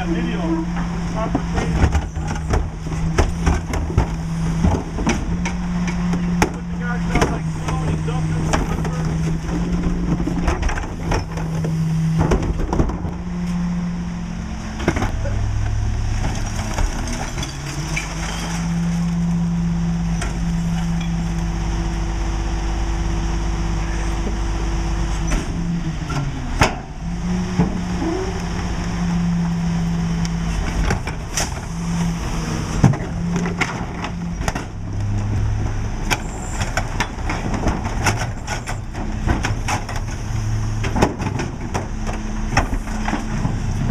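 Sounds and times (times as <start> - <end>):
diesel truck engine running: 0.0 - 43.9.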